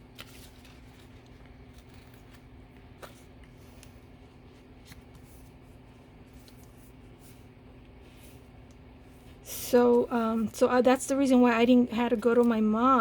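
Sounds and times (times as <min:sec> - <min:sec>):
paper rustling: 0:00.0 - 0:08.5.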